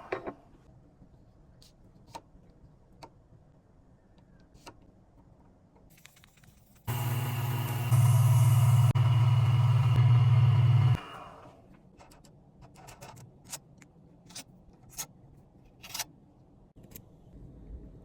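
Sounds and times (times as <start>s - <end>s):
power tool hum: 6.9s - 11.6s.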